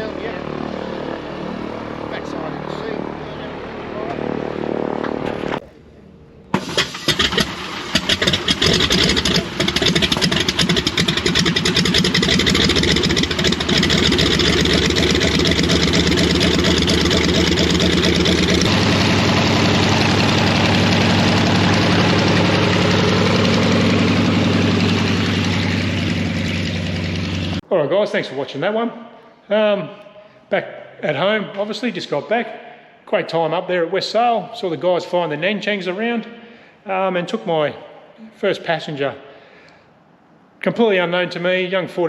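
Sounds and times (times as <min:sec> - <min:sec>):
radial aircraft engine starting: 0:00.0 - 0:27.6.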